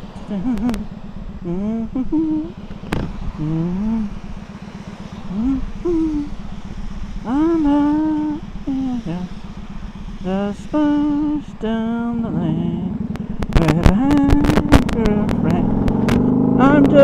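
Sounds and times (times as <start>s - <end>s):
person humming a tune: 0.0s - 2.6s, 3.3s - 4.2s, 5.3s - 6.4s, 7.3s - 9.4s, 10.2s - 17.0s
motorcycle engine running: 0.0s - 17.0s.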